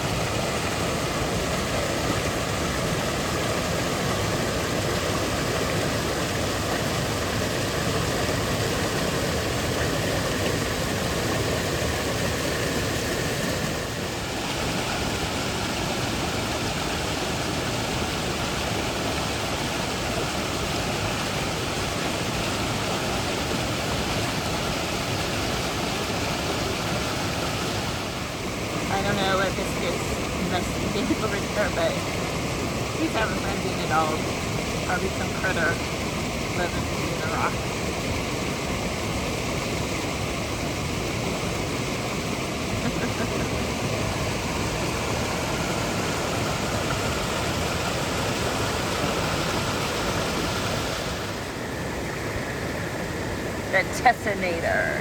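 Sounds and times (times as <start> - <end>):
creek water rushing: 0.0 - 55.0.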